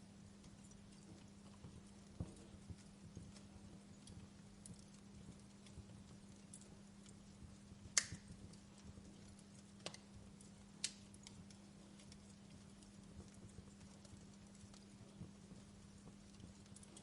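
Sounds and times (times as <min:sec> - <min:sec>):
fire crackling: 0:00.0 - 0:17.0
sharp fire pops: 0:07.9 - 0:08.5.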